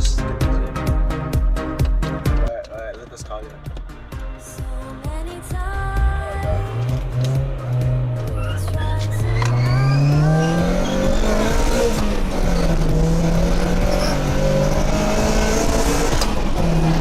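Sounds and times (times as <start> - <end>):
car engine accelerating hard: 6.0 - 17.0.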